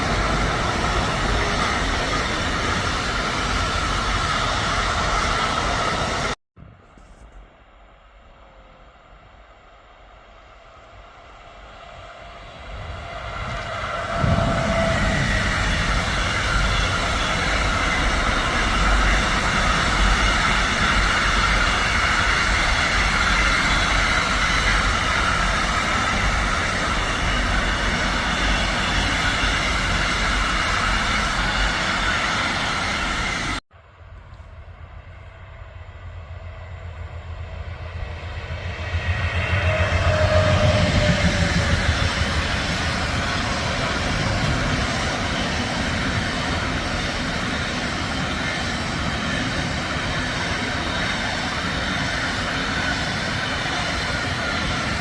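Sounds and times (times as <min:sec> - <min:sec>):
train approaching: 0:00.0 - 0:55.0
train passing at speed: 0:00.0 - 0:55.0.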